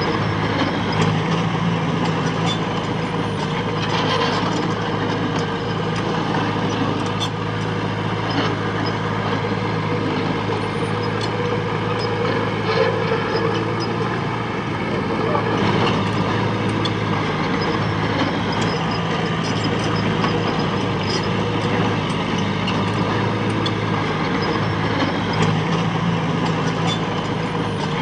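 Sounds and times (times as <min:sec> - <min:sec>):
diesel engine running under work: 0:00.0 - 0:28.0.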